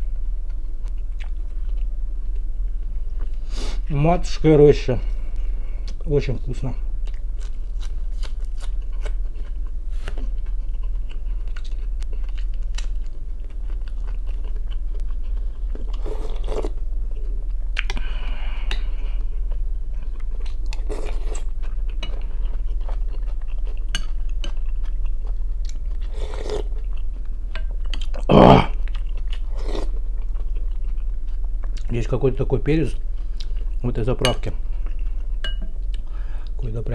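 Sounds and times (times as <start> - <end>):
steady low hum: 0.0 - 36.9
wet chewing and lip smacking: 0.4 - 2.5, 7.0 - 18.0, 19.4 - 31.9.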